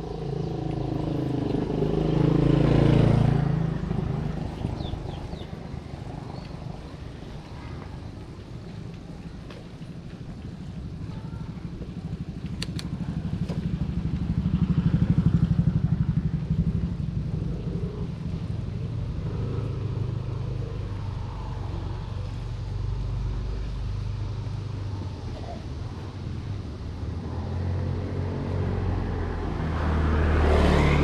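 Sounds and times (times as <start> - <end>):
motorcycle passing by: 0.0 - 31.0
sharp clicks: 12.5 - 12.9.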